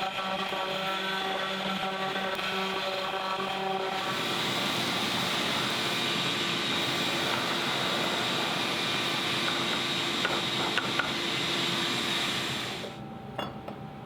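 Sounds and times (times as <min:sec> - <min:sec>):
router spindle whining: 0:00.0 - 0:13.0.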